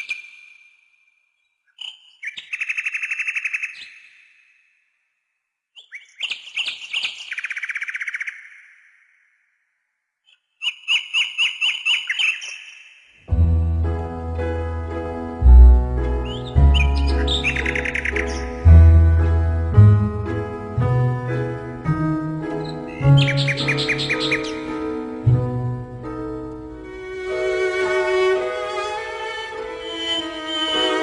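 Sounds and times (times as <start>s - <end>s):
nightingale song: 0.0s - 0.8s, 1.4s - 4.6s, 5.8s - 9.6s, 10.2s - 14.7s, 15.4s - 31.0s
orchestra: 13.3s - 31.0s.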